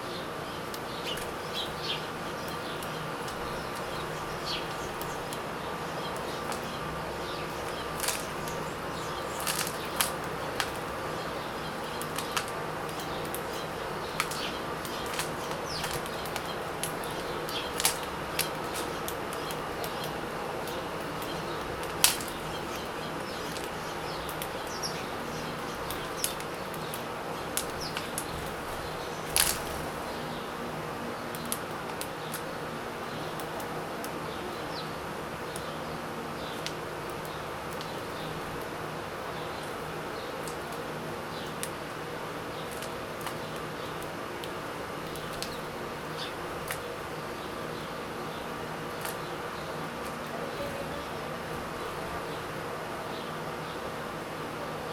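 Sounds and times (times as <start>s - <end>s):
sharp clicks of birds feeding: 0.0s - 54.9s
steady buzzing hum: 0.0s - 54.9s
wing flutters: 6.1s - 30.3s.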